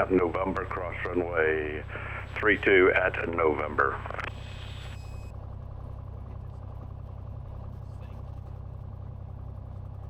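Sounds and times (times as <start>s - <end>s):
radio hiss: 0.0s - 5.1s
airplane piston engine droning: 0.0s - 10.0s.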